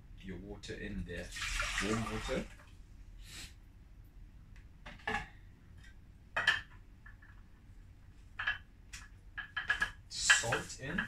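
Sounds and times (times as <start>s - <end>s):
metallic clatter of pots: 6.4s - 6.8s, 9.4s - 10.6s.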